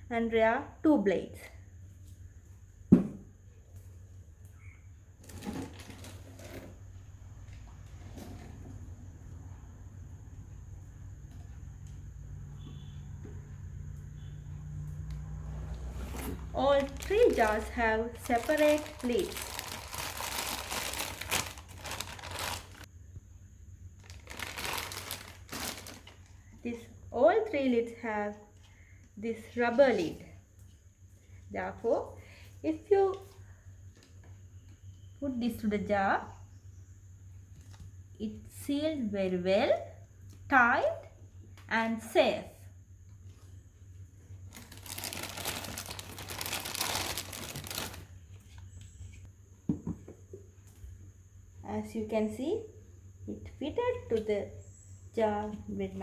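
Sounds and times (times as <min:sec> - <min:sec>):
plastic packaging crinkling: 0:16.0 - 0:22.9, 0:24.0 - 0:26.4, 0:44.5 - 0:48.2.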